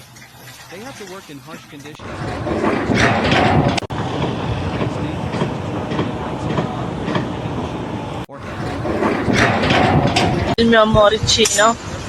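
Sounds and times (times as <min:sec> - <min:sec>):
mechanical rumble with clatter: 0:01.9 - 0:10.6.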